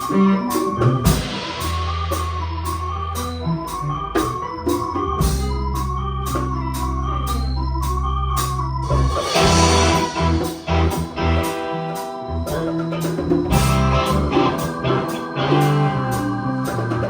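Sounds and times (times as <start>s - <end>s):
held bass notes: 0.0s - 17.0s
organ-sound keyboard: 0.0s - 17.0s.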